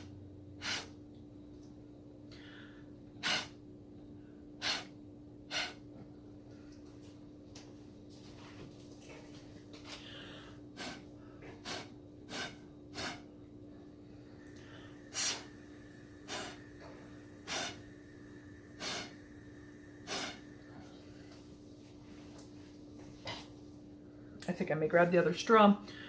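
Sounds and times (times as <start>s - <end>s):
steady low hum: 0.0s - 26.0s
puffs of breath through a straw: 0.6s - 1.0s, 2.3s - 3.6s, 4.6s - 5.8s, 10.0s - 13.3s, 14.4s - 21.4s.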